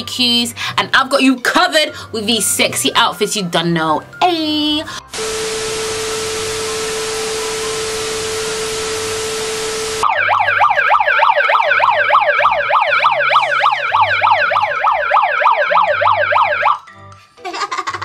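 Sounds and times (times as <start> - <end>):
static hiss: 5.1 - 10.0
steady tone: 5.1 - 10.9
megaphone siren fast warble: 5.2 - 16.8.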